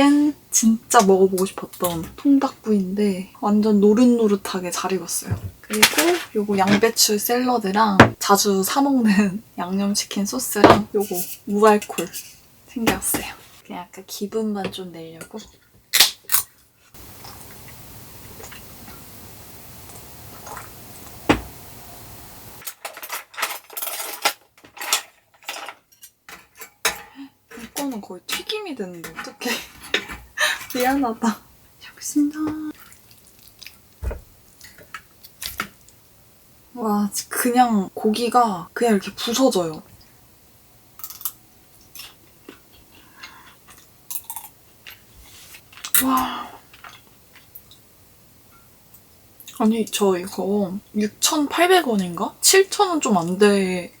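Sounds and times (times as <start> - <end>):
cutlery scraping on a plate: 24.8 - 30.8.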